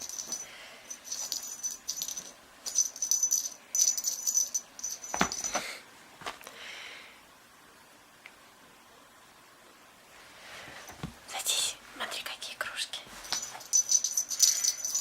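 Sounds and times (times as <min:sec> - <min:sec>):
jingle bell rattling: 0:00.0 - 0:05.6, 0:13.2 - 0:15.0.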